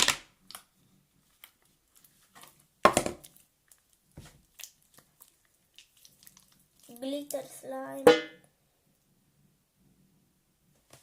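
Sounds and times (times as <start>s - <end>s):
slime squished by hand: 3.2s - 7.5s.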